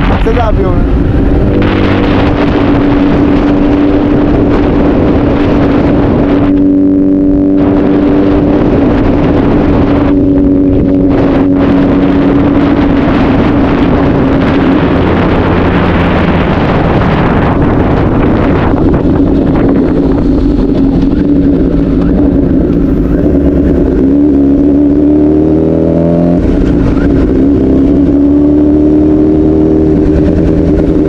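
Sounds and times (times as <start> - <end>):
motorcycle engine running: 0.0 - 31.0
wind rushing over microphone: 0.0 - 31.0.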